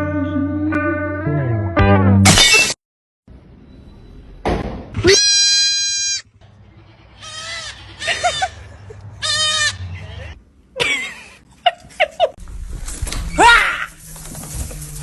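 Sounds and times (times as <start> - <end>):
animal bleating: 5.0 - 8.6, 9.2 - 9.9.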